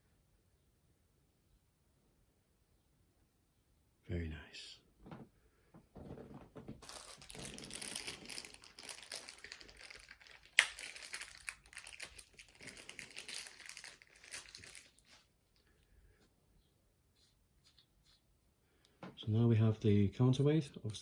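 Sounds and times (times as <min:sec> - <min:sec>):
plastic packaging crinkling: 0:06.8 - 0:15.3.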